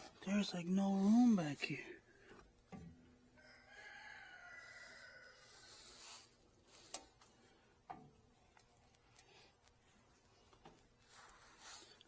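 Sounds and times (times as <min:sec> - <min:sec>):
rooster crowing: 0:03.4 - 0:05.8.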